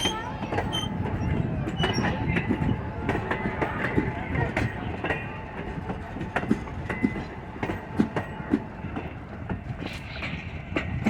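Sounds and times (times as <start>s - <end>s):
train rolling rumble: 0.0s - 11.0s
train wheels clicking on rail joints: 0.0s - 11.0s.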